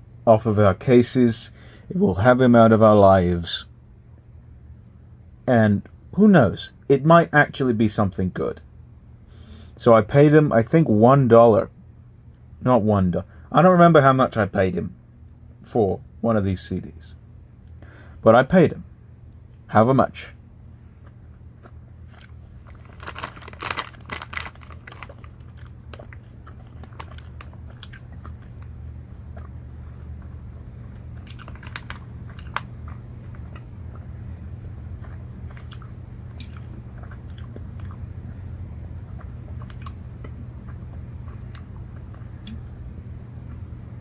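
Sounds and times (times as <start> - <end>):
low hum: 16.8 - 44.0
chewing gummy candy: 20.9 - 43.6
plastic bag crinkling: 22.2 - 28.7, 31.2 - 32.7.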